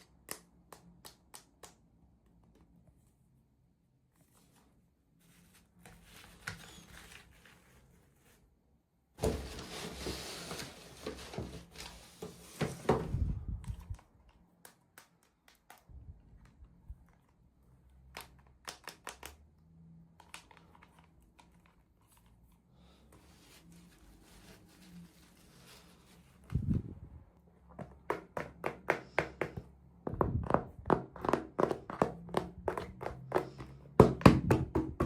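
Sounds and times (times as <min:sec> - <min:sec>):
packaging rustling and crinkling: 0:09.2 - 0:14.4.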